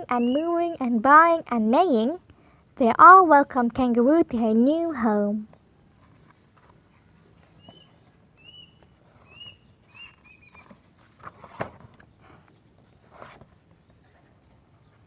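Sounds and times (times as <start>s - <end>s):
faint bird chirps: 0.0s - 0.8s, 6.0s - 11.2s, 12.0s - 15.0s.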